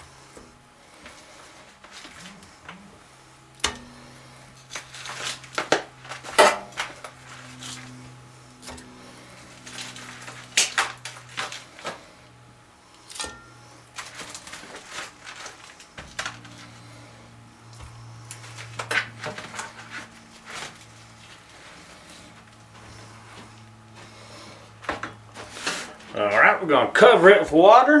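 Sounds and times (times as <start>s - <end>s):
low hum: 0.0s - 27.5s
pots and dishes clinking: 13.1s - 14.4s.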